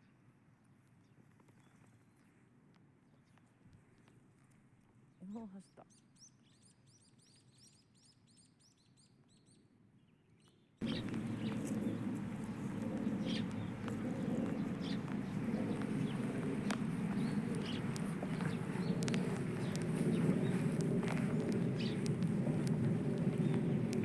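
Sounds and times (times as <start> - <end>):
bird chirping rising notes: 10.8 - 24.0
low outdoor rumble: 10.8 - 24.0
sharp ticks: 10.8 - 24.0.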